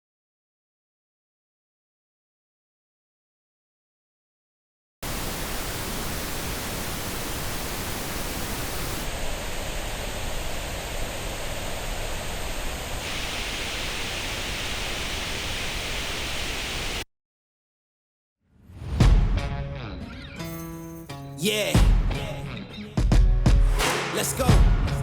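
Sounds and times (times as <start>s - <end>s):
pink noise test signal: 5.0s - 17.0s.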